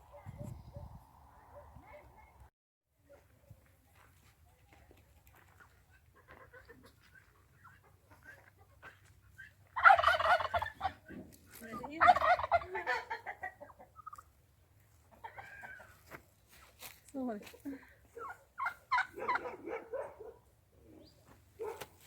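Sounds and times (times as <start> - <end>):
turkey gobbling: 6.2 - 11.1, 11.8 - 14.3, 15.1 - 16.0, 18.2 - 19.6.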